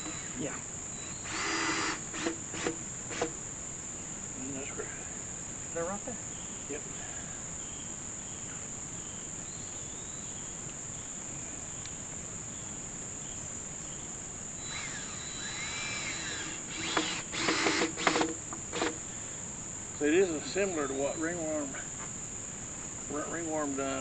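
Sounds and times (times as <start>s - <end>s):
insects chirring: 0.0s - 24.0s
loud knocking and scraping: 14.8s - 19.0s.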